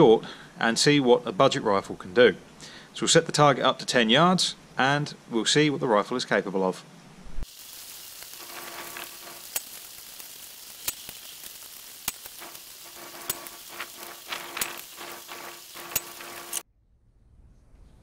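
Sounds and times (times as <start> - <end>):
heavy rain pouring: 7.5 - 16.6
sharp ticks: 10.8 - 16.6.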